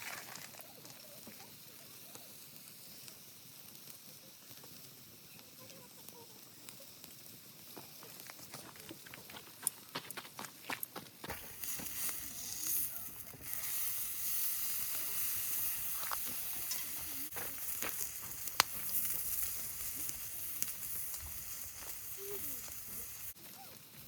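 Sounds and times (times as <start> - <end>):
steak sizzling on a griddle: 0.6 - 8.4, 11.3 - 24.0
sharp pops: 10.8 - 23.3.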